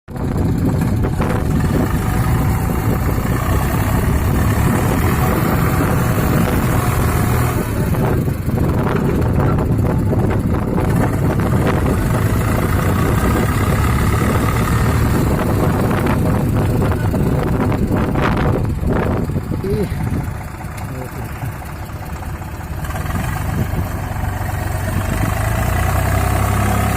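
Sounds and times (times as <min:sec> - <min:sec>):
tractor diesel engine running hard: 0:00.1 - 0:26.9
rattling: 0:00.2 - 0:26.6.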